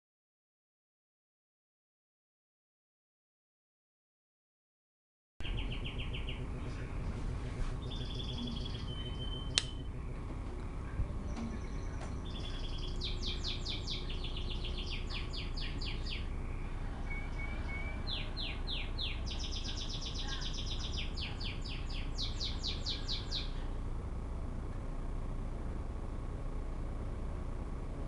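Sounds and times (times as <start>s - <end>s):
songbird trilling: 5.4s - 6.4s, 7.8s - 9.8s, 11.2s - 23.7s
low rumble: 5.4s - 28.0s.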